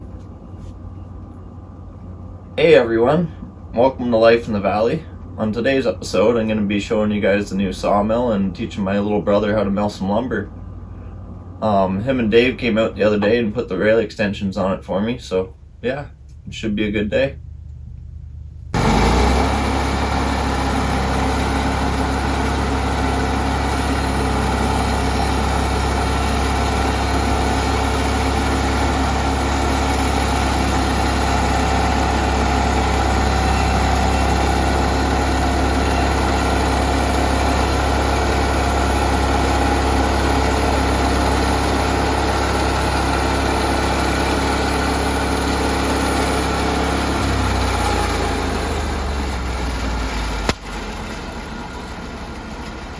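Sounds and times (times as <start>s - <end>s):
sawmill engine running: 18.3s - 52.9s.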